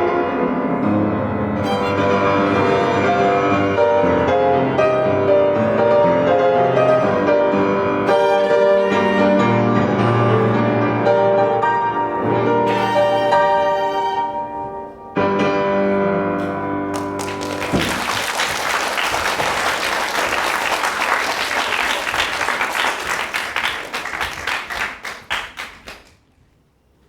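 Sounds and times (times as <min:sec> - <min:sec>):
piano: 0:00.0 - 0:25.6
bowed strings: 0:00.8 - 0:16.6.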